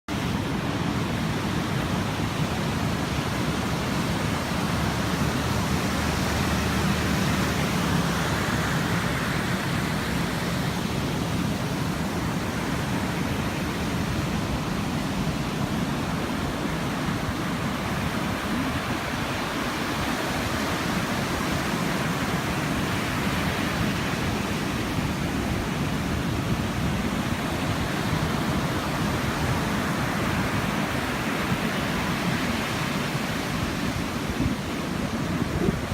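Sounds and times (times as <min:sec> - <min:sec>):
sea surf rushing: 0:00.1 - 0:35.9.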